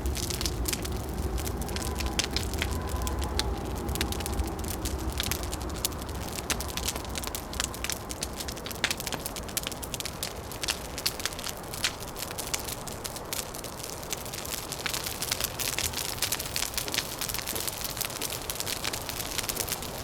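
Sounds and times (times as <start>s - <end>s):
thin whistle of wind: 0.0s - 8.4s
low rumble of wind: 0.0s - 20.0s
wood fire crackling and popping: 0.0s - 20.0s.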